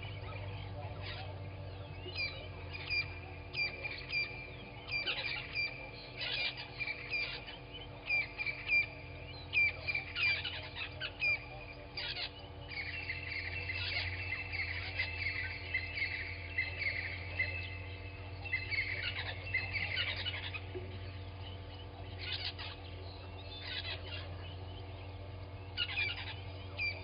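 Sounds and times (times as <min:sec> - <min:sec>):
birds chirping: 0:00.0 - 0:27.0
low electrical hum: 0:00.0 - 0:27.0.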